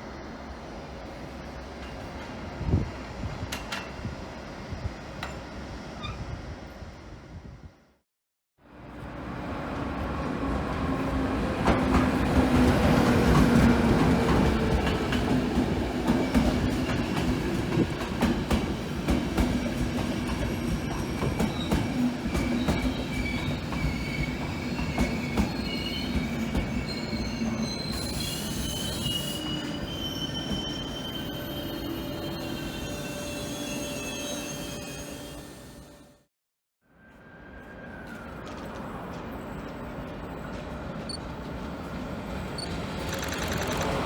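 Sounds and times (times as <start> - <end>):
high wheel squeal: 22.6 - 36.0.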